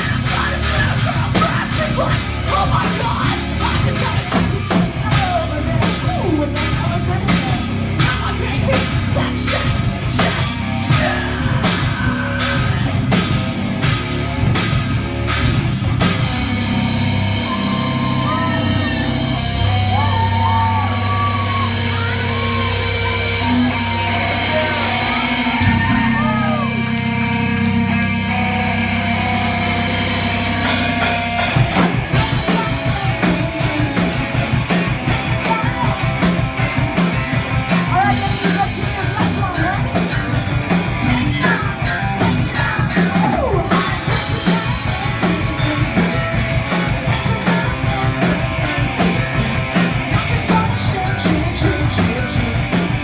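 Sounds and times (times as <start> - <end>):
drums on fast beat: 0.0 - 53.0
metal band playing live: 0.0 - 53.0.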